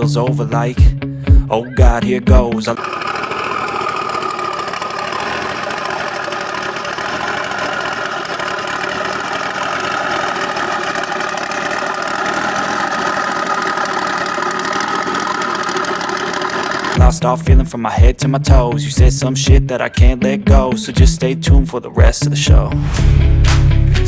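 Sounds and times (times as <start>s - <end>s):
car engine idling: 2.7s - 18.1s.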